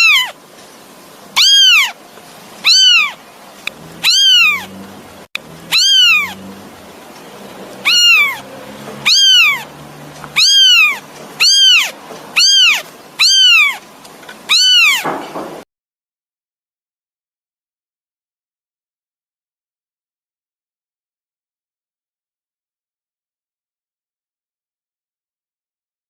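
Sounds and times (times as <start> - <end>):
kitten meowing: 0.0 - 0.4, 1.4 - 2.0, 2.6 - 4.8, 5.6 - 6.5, 7.8 - 9.7, 10.3 - 13.8, 14.5 - 15.2.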